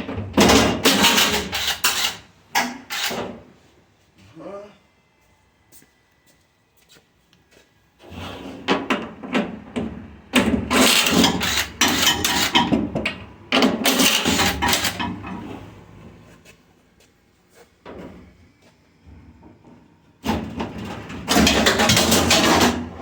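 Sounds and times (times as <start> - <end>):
metal parts rattling and clanking: 0.0 - 3.4, 9.0 - 15.5, 20.2 - 23.0.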